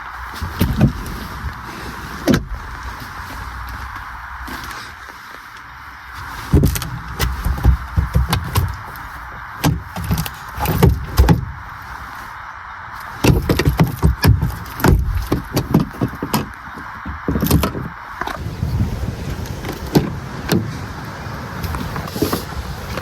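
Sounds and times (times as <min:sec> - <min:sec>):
steady hiss: 0:00.0 - 0:23.0
knocks thumps and clatter: 0:00.4 - 0:01.6, 0:06.4 - 0:11.7, 0:13.2 - 0:18.4.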